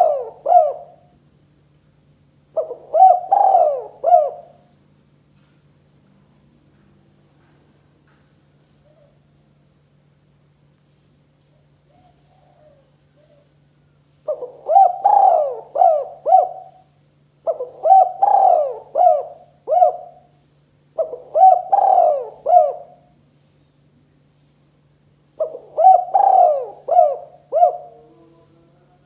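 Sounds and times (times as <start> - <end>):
dove cooing: 0.0 - 1.1, 2.6 - 4.7, 11.9 - 13.5, 14.2 - 20.3, 21.0 - 23.2, 25.4 - 29.0.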